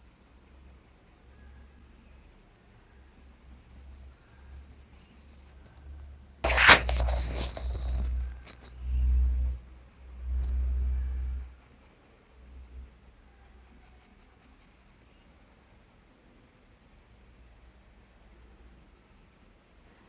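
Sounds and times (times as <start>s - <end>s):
pencil shading on paper: 0.0s - 5.7s, 6.4s - 9.5s.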